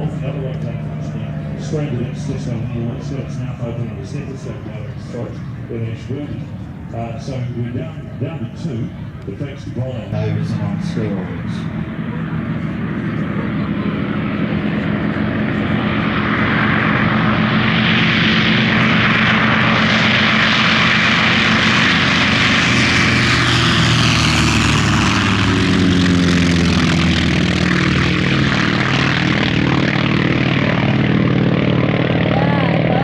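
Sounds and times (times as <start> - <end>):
propeller planes flying past: 0.0 - 33.0.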